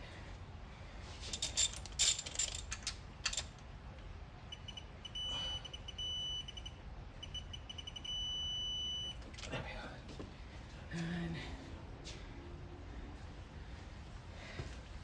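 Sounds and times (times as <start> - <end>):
ratchet wrench clicking: 1.3 - 3.6.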